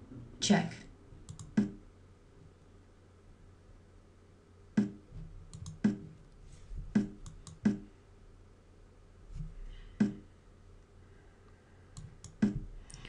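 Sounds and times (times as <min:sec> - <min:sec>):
mouse clicks: 0:01.3 - 0:01.8, 0:04.8 - 0:06.0, 0:12.0 - 0:13.0
chess move sounds: 0:04.8 - 0:07.9, 0:09.3 - 0:10.3.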